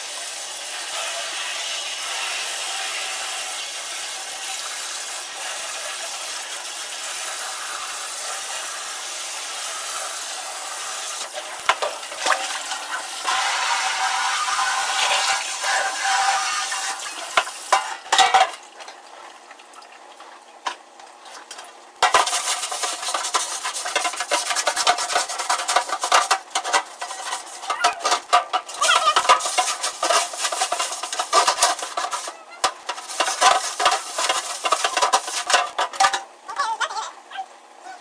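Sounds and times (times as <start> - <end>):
pan scraping and rubbing: 9.8 - 18.6, 20.7 - 36.8
dishware and utensils clinking: 11.3 - 18.6, 22.0 - 36.3.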